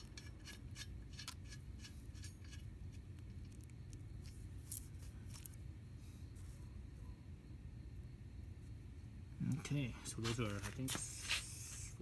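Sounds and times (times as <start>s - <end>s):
small metal hardware clicking: 0.0s - 3.7s.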